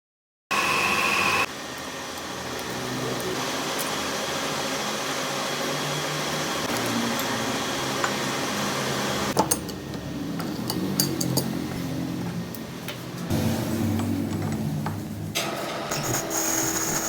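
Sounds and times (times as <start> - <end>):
lathe running: 15.7 - 17.0.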